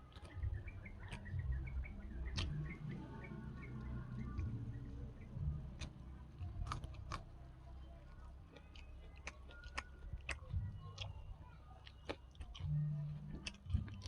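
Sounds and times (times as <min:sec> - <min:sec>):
chewing and biting: 0:00.0 - 0:14.0
sharp mouth clicks: 0:02.2 - 0:02.9.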